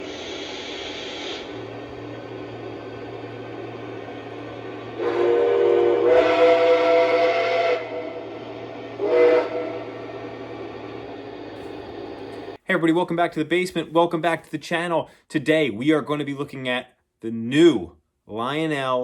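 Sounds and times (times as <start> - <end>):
model train steam whistle: 0.0 - 1.8, 4.8 - 10.3.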